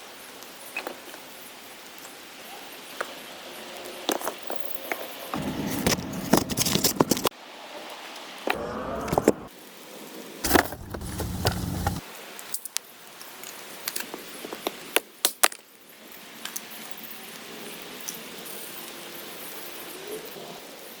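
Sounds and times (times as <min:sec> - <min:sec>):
heavy low rumble: 0:05.4 - 0:07.3, 0:08.5 - 0:09.5, 0:10.5 - 0:12.0.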